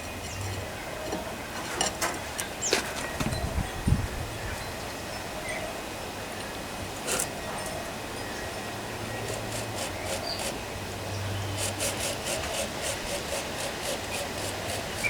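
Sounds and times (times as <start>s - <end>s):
rhythmic scraping strokes: 9.2s - 10.6s, 11.6s - 15.0s.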